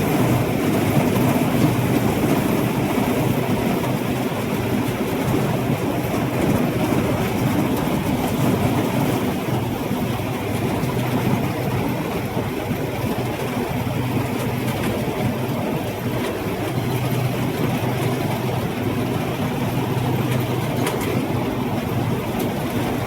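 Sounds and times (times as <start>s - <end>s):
combine harvester engine humming: 0.0s - 23.0s
threshing machinery clatter: 14.2s - 23.0s.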